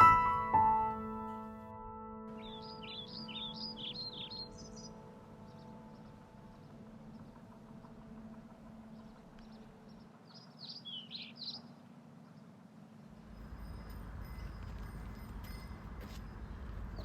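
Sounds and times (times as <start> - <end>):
high bird chirps: 2.3 - 7.2.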